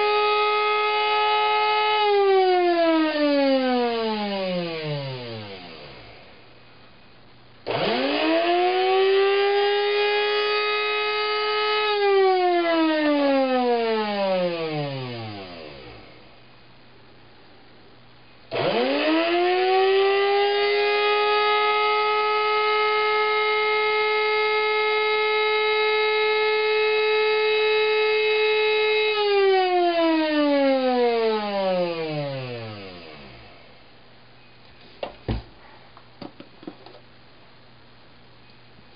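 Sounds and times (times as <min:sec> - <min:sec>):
coffee grinder motor whine: 0:07.7 - 0:08.8.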